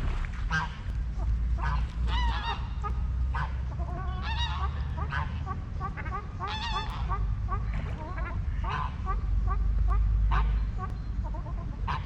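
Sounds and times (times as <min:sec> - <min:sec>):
steady low rumble: 0:00.0 - 0:12.0
geese honking: 0:00.5 - 0:12.0.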